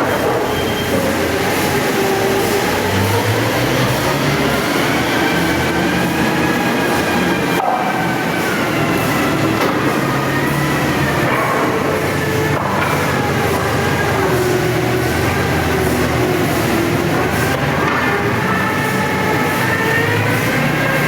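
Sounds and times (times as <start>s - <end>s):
sawmill machinery running: 0.0s - 21.0s.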